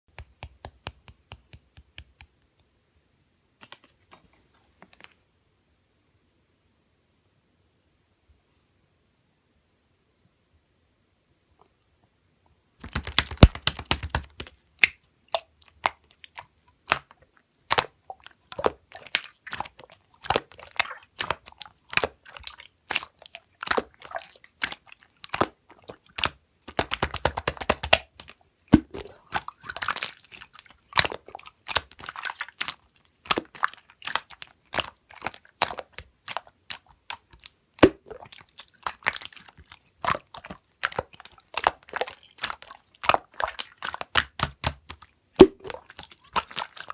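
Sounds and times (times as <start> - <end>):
slime crackling and popping: 12.8 - 46.9.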